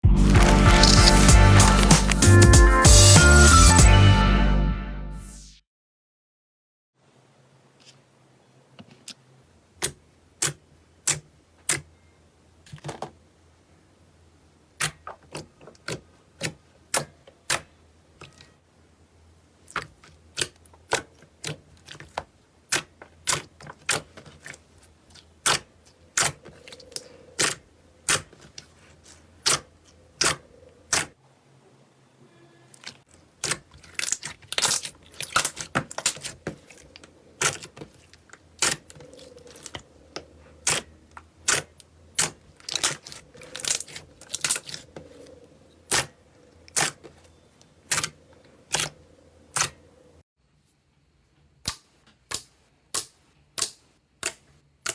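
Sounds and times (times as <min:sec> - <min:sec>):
slime popping and clicking: 0:00.4 - 0:02.3.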